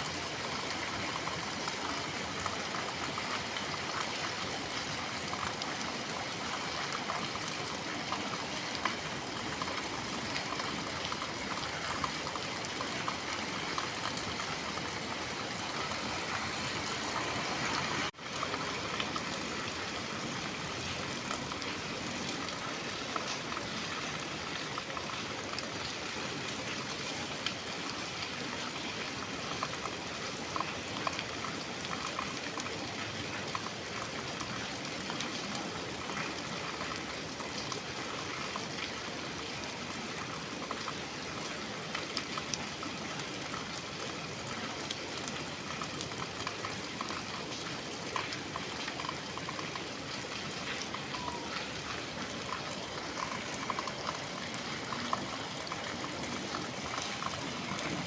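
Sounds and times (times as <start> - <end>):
raindrops ticking: 0.2 - 26.2, 44.8 - 58.0.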